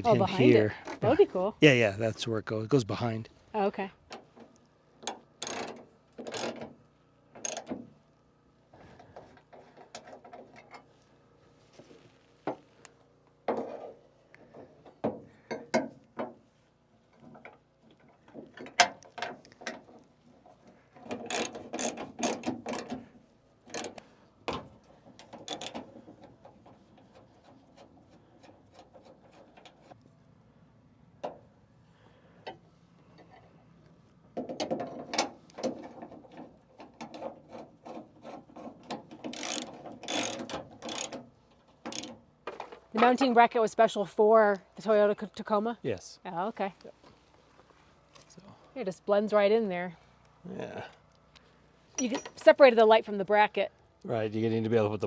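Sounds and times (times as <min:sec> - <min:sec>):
metal parts knocking: 0:05.0 - 0:06.6, 0:21.1 - 0:23.0, 0:23.7 - 0:24.0, 0:25.2 - 0:26.0, 0:38.5 - 0:41.2, 0:41.9 - 0:43.2
ratchet wrench clicking: 0:05.0 - 0:06.6, 0:07.4 - 0:07.7, 0:21.3 - 0:22.9, 0:23.7 - 0:24.0, 0:25.2 - 0:25.8, 0:39.2 - 0:41.2, 0:41.9 - 0:42.2.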